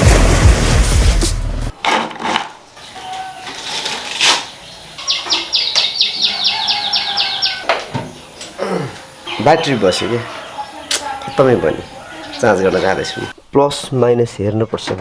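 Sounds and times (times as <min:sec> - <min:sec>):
bird calling falling notes: 0:04.3 - 0:13.4.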